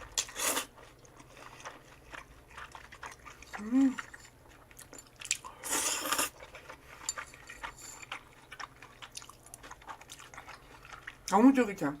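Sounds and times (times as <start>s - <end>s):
quiet chewing: 0.0s - 11.6s
person slurping noodles: 0.2s - 0.7s, 5.5s - 6.4s.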